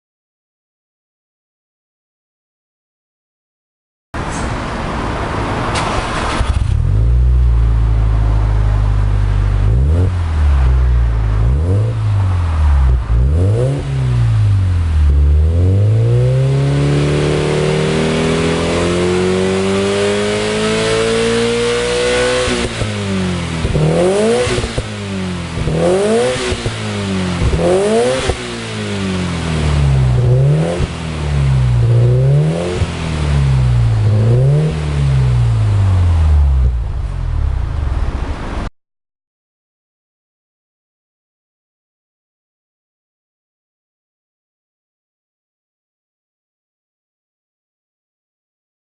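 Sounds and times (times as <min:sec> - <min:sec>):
car engine revving: 0:04.2 - 0:38.7.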